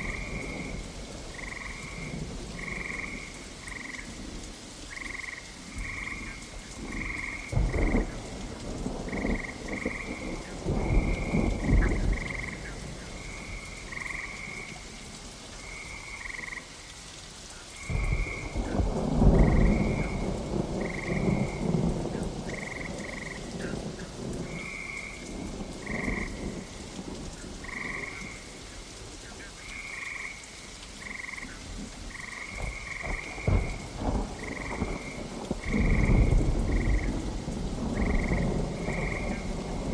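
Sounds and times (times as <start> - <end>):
steady rain: 0.0 - 39.9
rolls of thunder: 6.8 - 14.2, 17.8 - 26.7, 32.1 - 39.9.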